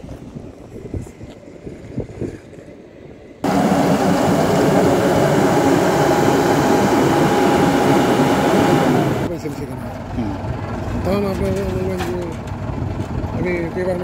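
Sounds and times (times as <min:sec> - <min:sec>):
heavy machine engine running: 0:03.4 - 0:14.0.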